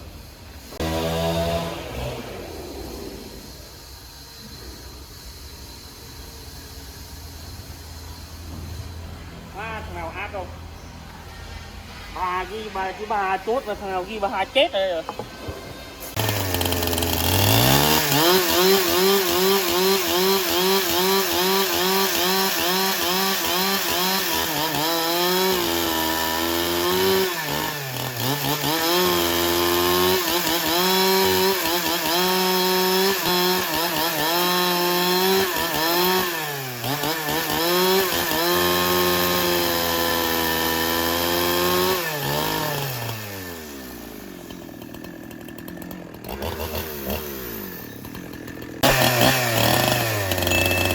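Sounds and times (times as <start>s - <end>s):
chainsaw cutting wood: 0.0s - 9.0s, 15.1s - 50.9s.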